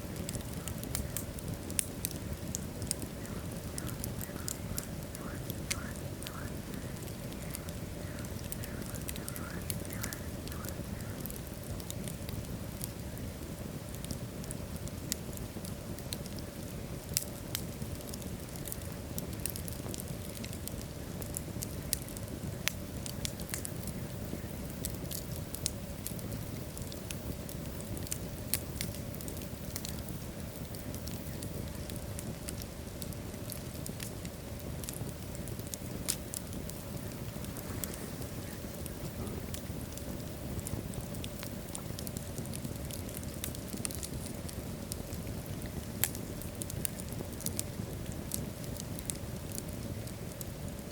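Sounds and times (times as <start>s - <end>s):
fire crackles and pops: 0.0s - 50.9s
flames burning: 0.0s - 50.9s.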